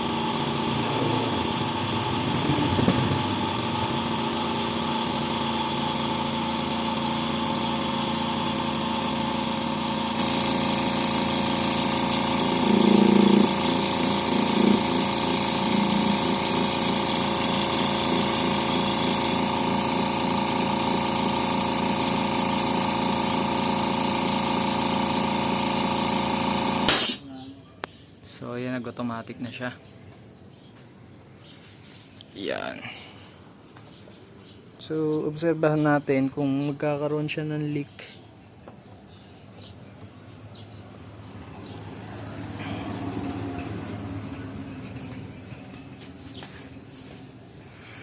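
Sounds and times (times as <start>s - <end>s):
air compressor running: 0.0s - 27.3s, 38.5s - 48.0s
loud bumps: 2.5s - 3.5s.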